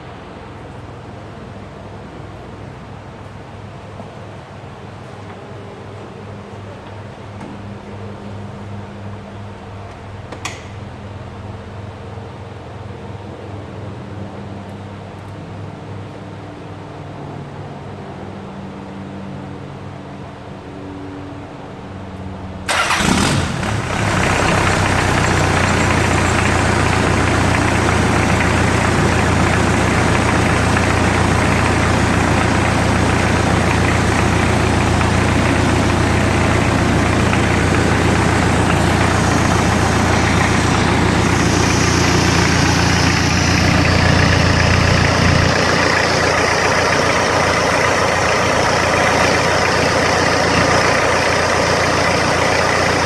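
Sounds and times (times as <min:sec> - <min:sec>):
diesel engine idling: 0:22.7 - 0:53.0.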